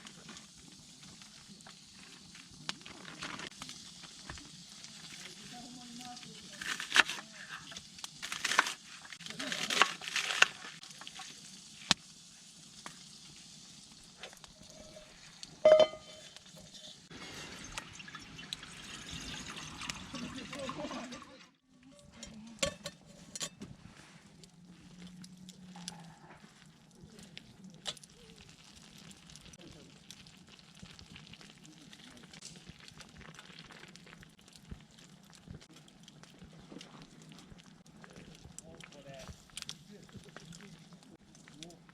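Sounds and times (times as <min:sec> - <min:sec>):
steady hiss: 0:00.0 - 0:09.6, 0:10.4 - 0:17.8, 0:38.6 - 0:41.9
sharp snaps and pops: 0:00.0 - 0:14.6, 0:24.4 - 0:41.9
wood fire crackling and sizzling: 0:00.0 - 0:41.9
metal clink: 0:15.7 - 0:16.4.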